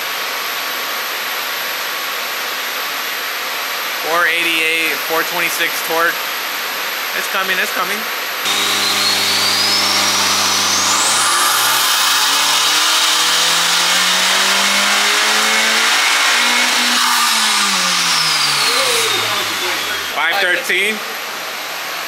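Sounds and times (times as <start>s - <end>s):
car engine at full throttle: 8.5s - 20.2s
high turbo whistle: 8.5s - 20.2s.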